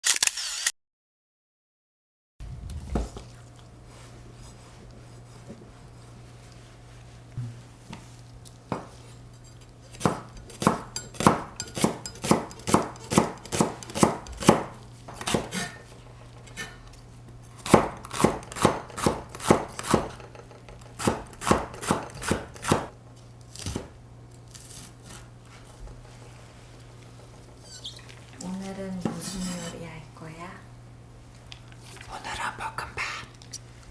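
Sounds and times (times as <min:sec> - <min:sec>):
knife chopping on cutting board: 0:08.7 - 0:09.0, 0:09.9 - 0:15.8, 0:17.6 - 0:20.3, 0:21.0 - 0:22.9, 0:29.0 - 0:29.7.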